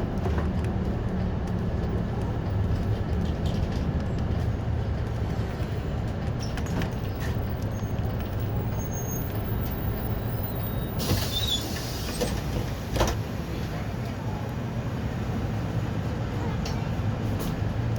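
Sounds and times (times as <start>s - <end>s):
bus engine hum: 0.0s - 17.9s
road and tyre noise: 0.0s - 17.9s.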